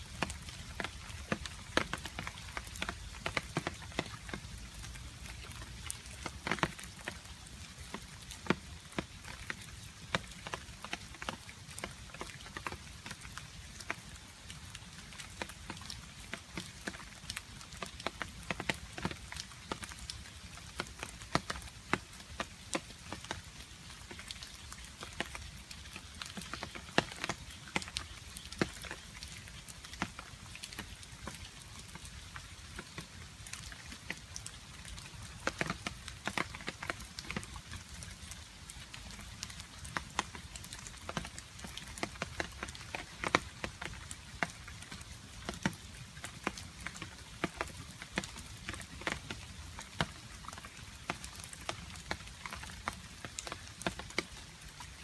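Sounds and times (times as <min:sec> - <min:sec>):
rain hiss: 0:00.0 - 0:55.0
water dripping: 0:00.0 - 0:55.0.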